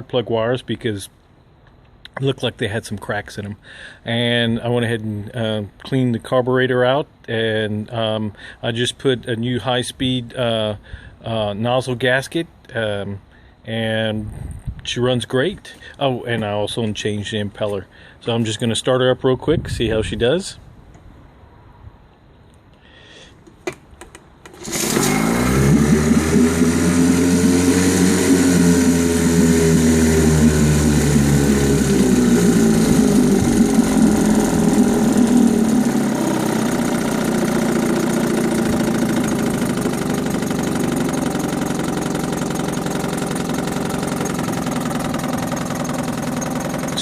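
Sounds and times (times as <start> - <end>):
outboard engine running: 24.5 - 47.0.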